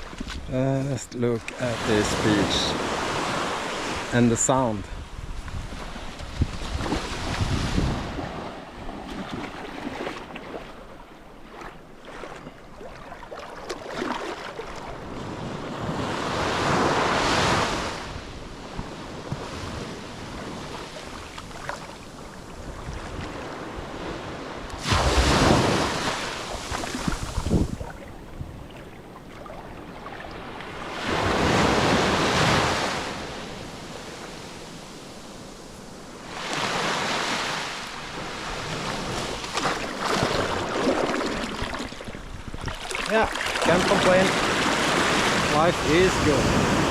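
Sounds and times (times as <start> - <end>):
waves crashing on beach: 0.0 - 10.8, 11.4 - 46.9
wind buffeting microphone: 4.8 - 9.5, 25.0 - 29.8, 40.2 - 46.9
water washing: 42.7 - 46.9.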